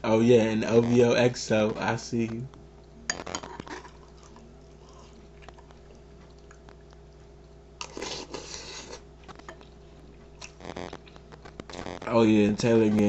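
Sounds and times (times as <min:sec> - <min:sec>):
low steady hum: 0:00.0 - 0:13.0
crunchy cereal being chewed: 0:03.2 - 0:07.2, 0:07.8 - 0:12.2.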